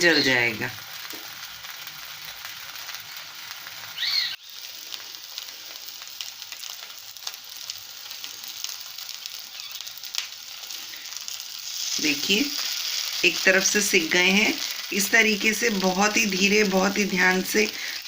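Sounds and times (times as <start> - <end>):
patties sizzling in oil: 0.0 - 18.0
short high squeak: 9.5 - 9.9.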